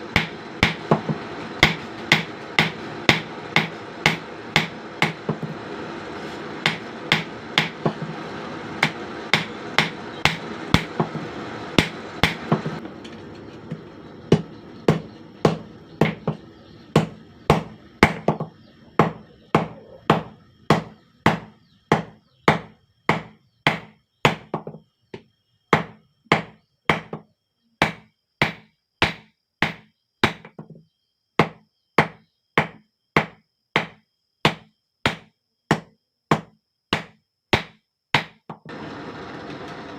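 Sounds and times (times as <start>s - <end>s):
steady rushing noise: 0.0s - 13.0s
hammer striking steel on anvil: 0.1s - 5.5s, 6.6s - 8.1s, 8.8s - 11.2s, 11.8s - 12.8s.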